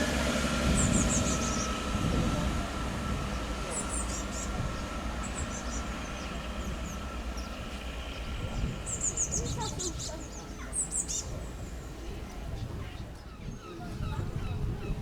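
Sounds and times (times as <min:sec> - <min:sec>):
small birds chirping: 0:03.3 - 0:12.4.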